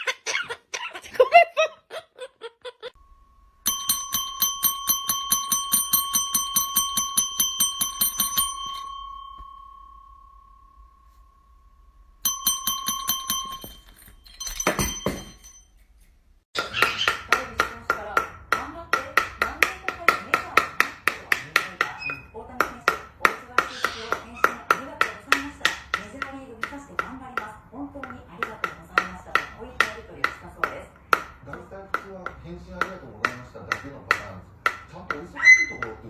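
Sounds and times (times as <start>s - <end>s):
small bell rung rapidly: 3.0s - 11.0s, 12.2s - 15.8s.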